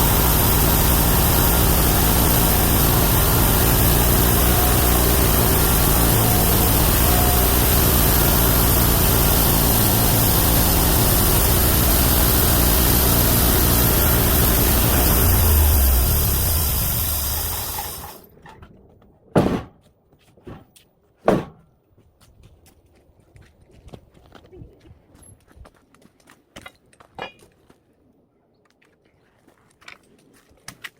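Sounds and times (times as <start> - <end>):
saw noise: 0.0 - 18.3
engine running: 0.0 - 18.4
sharp knocks: 19.4 - 19.8, 21.2 - 21.7.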